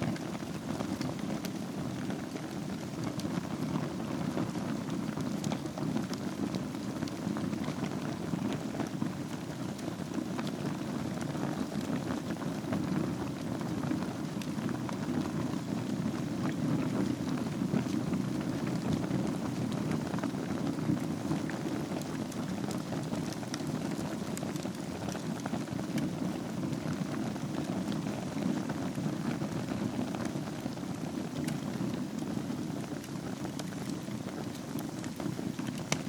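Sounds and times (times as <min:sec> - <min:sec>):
fire crackling and popping: 0:00.0 - 0:36.0.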